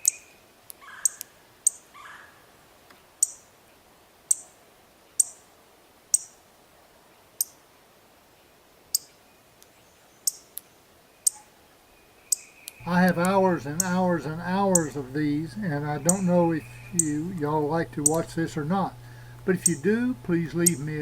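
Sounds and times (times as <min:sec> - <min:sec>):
beak pecking food in hard dish: 0:12.8 - 0:15.1, 0:15.8 - 0:18.3.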